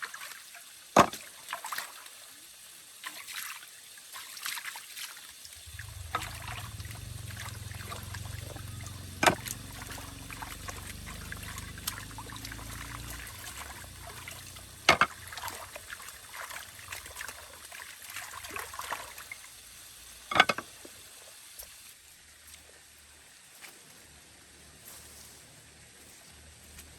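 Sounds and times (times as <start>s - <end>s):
water pouring and trickling: 0.0s - 22.8s
low rumble: 5.6s - 17.2s.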